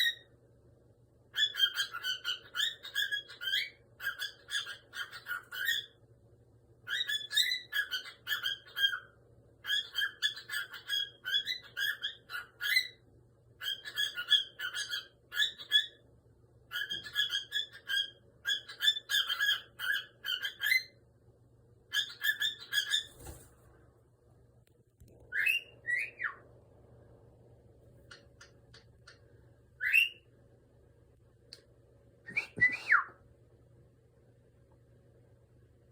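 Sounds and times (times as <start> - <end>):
cockatiel chattering: 1.4 - 5.9, 6.9 - 13.0, 13.6 - 16.0, 16.7 - 20.9, 21.9 - 23.3.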